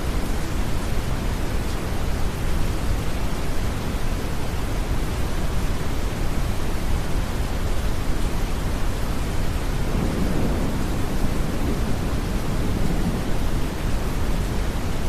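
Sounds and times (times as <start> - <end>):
rain hiss: 0.0 - 15.0
distant thunder rumble: 9.5 - 15.0.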